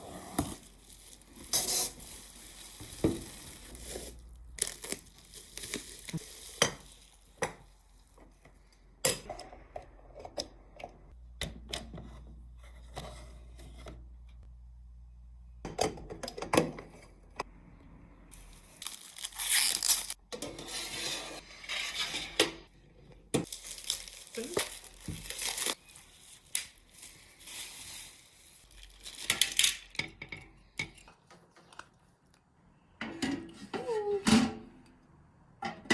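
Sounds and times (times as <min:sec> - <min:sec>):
crinkling and rustling: 0:00.3 - 0:08.8, 0:23.4 - 0:30.0.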